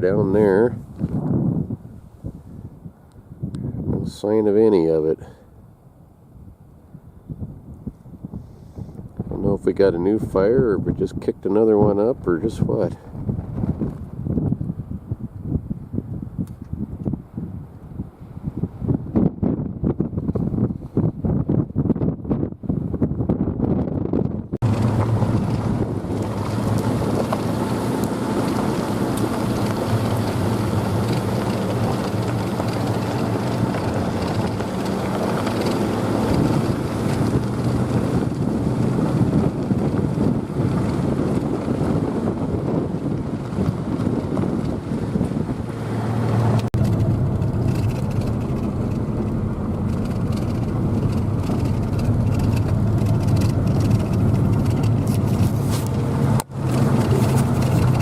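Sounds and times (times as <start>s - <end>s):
road and wind noise: 0.0s - 58.0s
low engine drone: 24.6s - 41.2s, 44.8s - 58.0s.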